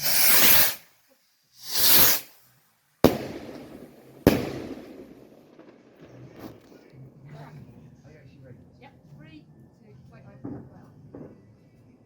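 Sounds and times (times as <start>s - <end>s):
fireworks bangs: 0.0s - 0.9s, 1.6s - 2.4s, 3.0s - 7.0s, 10.4s - 11.8s
fireworks hissing whooshes: 0.0s - 6.8s.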